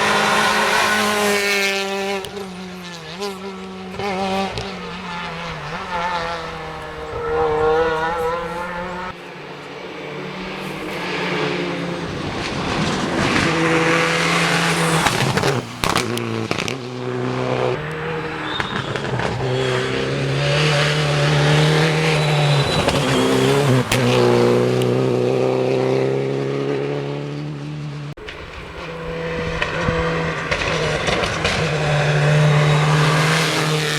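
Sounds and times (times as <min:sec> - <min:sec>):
rally car engine revving: 0:00.0 - 0:33.9
sharp cracks: 0:12.2 - 0:25.0.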